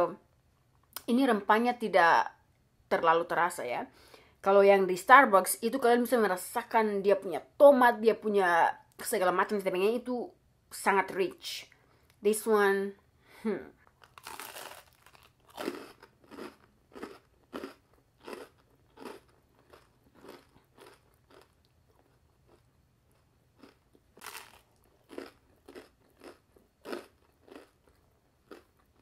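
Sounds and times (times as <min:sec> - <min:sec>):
person chewing crunchy bread: 0:13.8 - 0:29.0.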